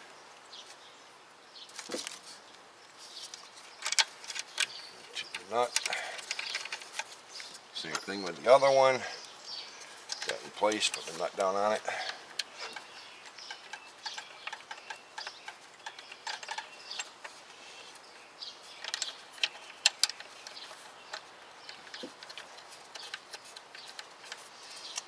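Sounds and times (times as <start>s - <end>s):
metallic clicks of tools and bolts: 10.0s - 17.4s, 18.8s - 25.0s.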